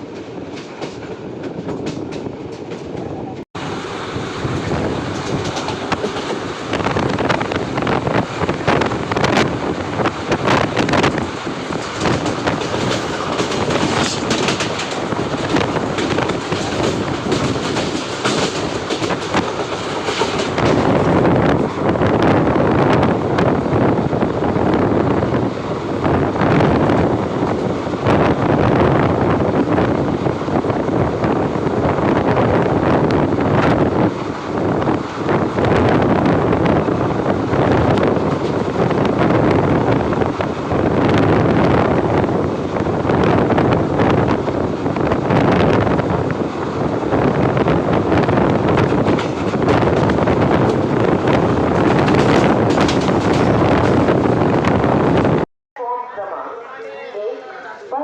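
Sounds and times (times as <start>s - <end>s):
train wheels clattering on rails: 0.0s - 3.1s, 4.2s - 23.8s, 32.3s - 55.3s
wind rushing over microphone: 0.0s - 55.5s.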